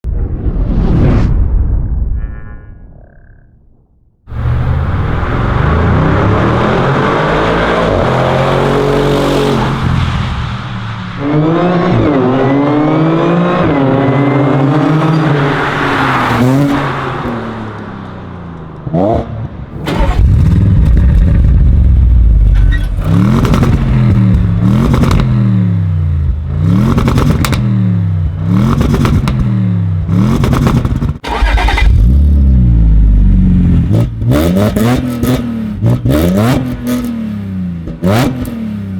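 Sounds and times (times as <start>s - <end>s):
car engine accelerating through gears: 4.3s - 9.9s.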